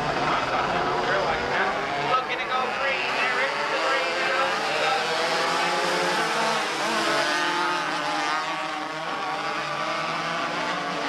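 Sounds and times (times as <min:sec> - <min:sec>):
race car engines: 0:00.0 - 0:11.0.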